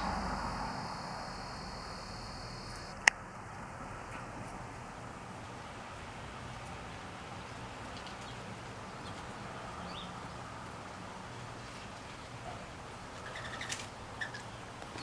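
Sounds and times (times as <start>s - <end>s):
low background hum: 0.0s - 6.8s.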